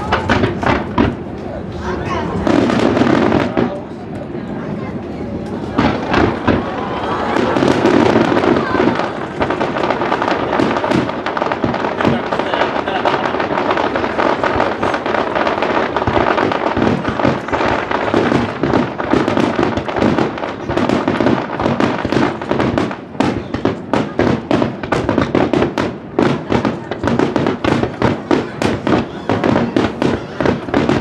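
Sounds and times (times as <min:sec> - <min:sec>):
sharp firework bangs: 0:00.0 - 0:01.4, 0:02.3 - 0:04.1, 0:05.6 - 0:31.0
fireworks bursting: 0:00.0 - 0:31.0.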